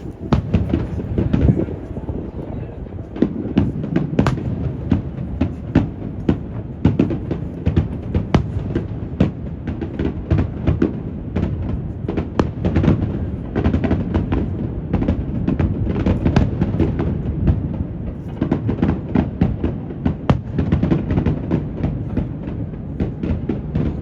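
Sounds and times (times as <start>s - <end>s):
wind on microphone: 0.0s - 18.5s
fireworks bangs and crackles: 0.0s - 24.0s.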